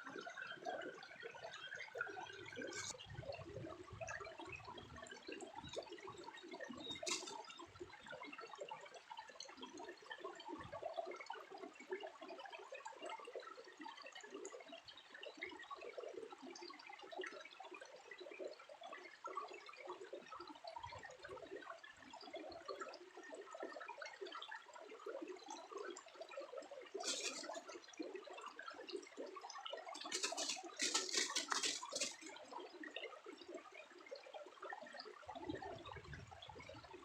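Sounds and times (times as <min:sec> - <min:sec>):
water trickling: 0:00.8 - 0:10.5, 0:26.0 - 0:36.9.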